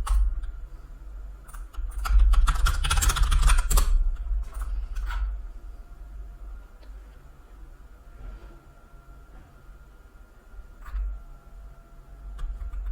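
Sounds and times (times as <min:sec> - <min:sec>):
steady low hum: 0:00.0 - 0:12.9
keyboard typing: 0:01.5 - 0:03.9.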